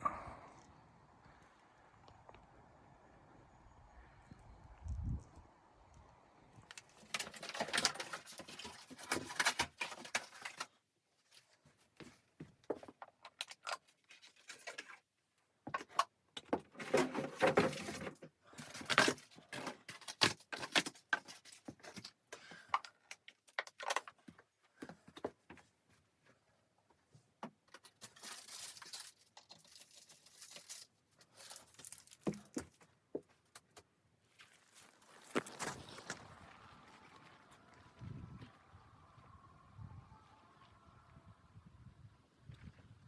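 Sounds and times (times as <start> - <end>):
crisp clicking and rustling: 6.7 - 15.1, 15.7 - 25.4, 27.5 - 32.9.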